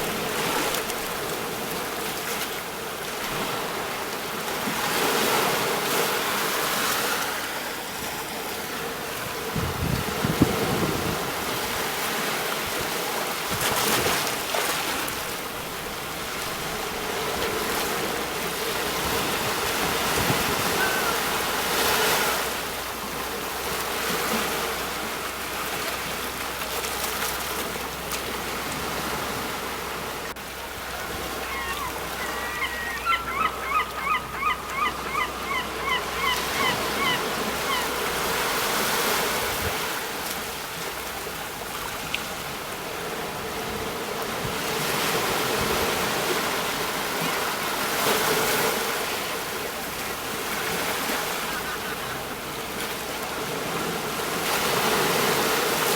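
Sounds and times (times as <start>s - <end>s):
sea waves breaking on shore: 0.0s - 55.9s
bird short calls: 20.6s - 21.4s, 31.4s - 37.8s.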